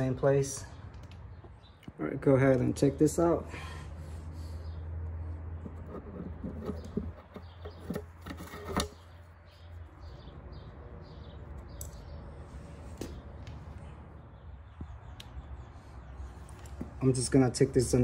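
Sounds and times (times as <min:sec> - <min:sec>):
engine parts and tools clicking: 0:00.8 - 0:02.8, 0:05.0 - 0:09.2.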